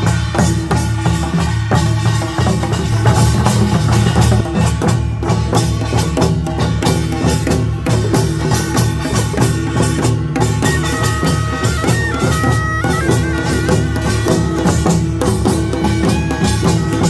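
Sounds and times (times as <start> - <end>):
gongs and drums clanging: 0.0 - 17.0
shrill reed melody: 9.8 - 17.0.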